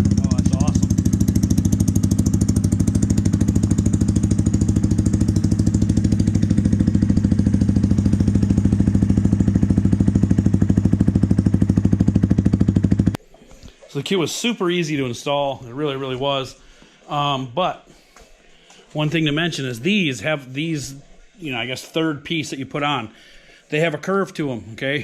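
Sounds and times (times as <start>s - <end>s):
motorcycle engine idling: 0.0s - 13.2s.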